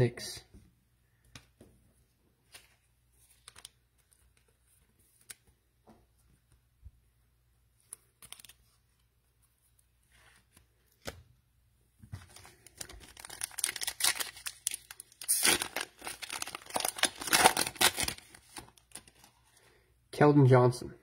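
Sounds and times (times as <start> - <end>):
cellophane wrapper crinkling and tearing: 3.2 - 5.4, 7.9 - 8.7, 12.2 - 19.5.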